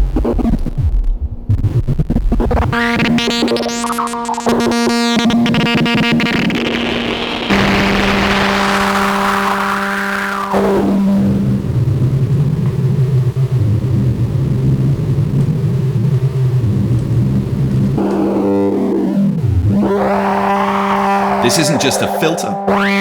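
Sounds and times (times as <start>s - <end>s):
buzzy synthesizer note: 2.5s - 11.8s, 18.9s - 23.0s.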